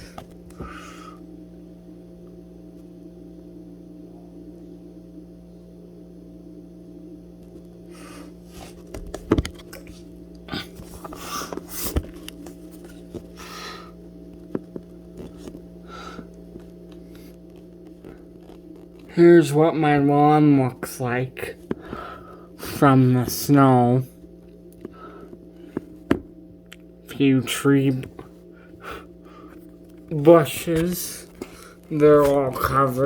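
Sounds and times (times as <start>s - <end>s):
steady electrical hum: 0.0s - 33.0s.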